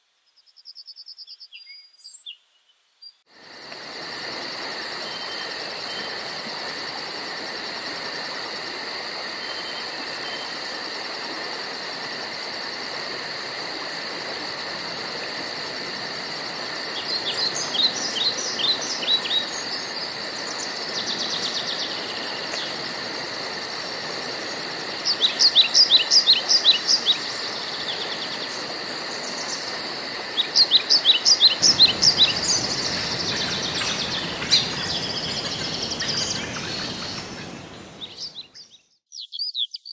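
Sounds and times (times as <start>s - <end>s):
songbird singing: 0.2s - 3.3s, 5.0s - 6.3s, 16.8s - 22.9s, 24.9s - 39.9s
insects trilling: 3.3s - 39.9s.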